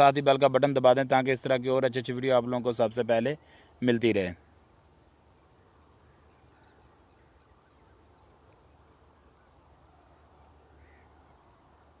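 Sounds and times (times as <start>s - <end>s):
insect chirping and trilling: 4.4s - 12.0s.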